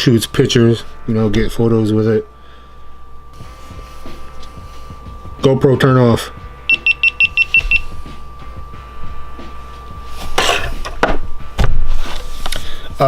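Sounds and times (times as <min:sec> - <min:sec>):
faint steady high tone: 0:05.4 - 0:08.0.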